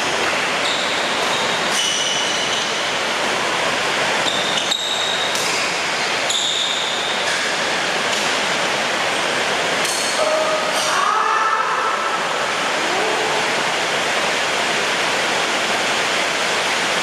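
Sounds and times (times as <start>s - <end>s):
heavy rain pouring: 0.0s - 4.3s, 6.9s - 17.0s
short high squeaks: 0.6s - 2.9s, 4.2s - 7.3s.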